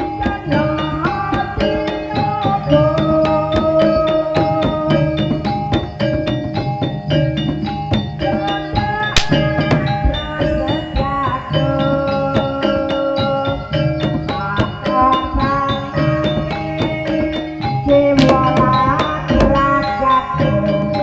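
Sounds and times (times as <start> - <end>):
drums: 0.0 - 21.0
metallophones playing: 0.0 - 21.0
sharp crack: 9.2 - 9.4.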